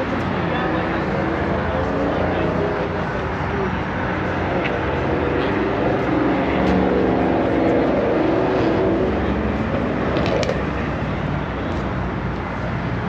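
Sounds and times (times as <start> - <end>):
outdoor rumble: 1.2 - 13.0.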